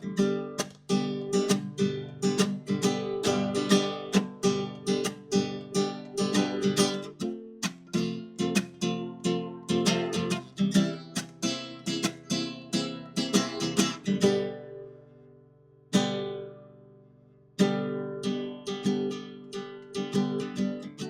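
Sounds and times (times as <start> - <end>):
acoustic guitar strumming: 0.0 - 15.1.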